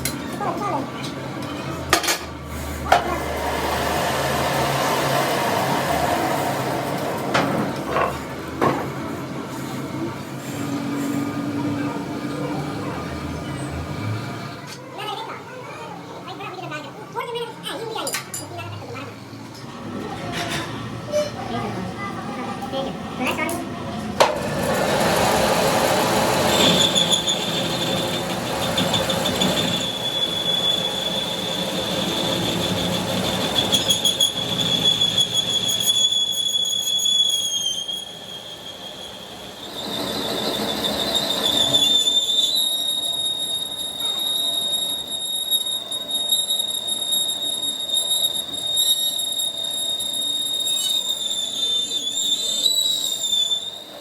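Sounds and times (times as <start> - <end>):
metal squeal from machining: 24.6 - 54.0.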